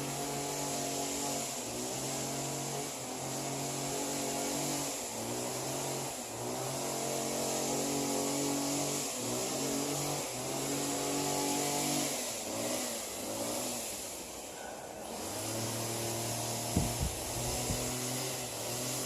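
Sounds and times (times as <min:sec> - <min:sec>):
vehicle engine running: 0:15.0 - 0:19.0.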